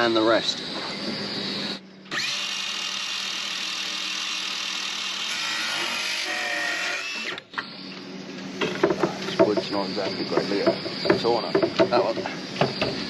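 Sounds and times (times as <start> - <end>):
power sander on wood: 0.5 - 7.4.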